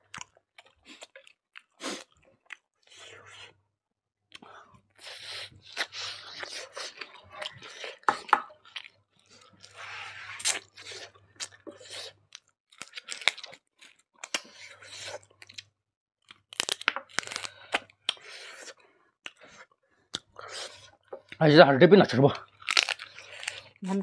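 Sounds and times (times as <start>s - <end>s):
chewing and crunching food: 0.0s - 3.5s, 4.3s - 21.6s, 22.3s - 24.0s.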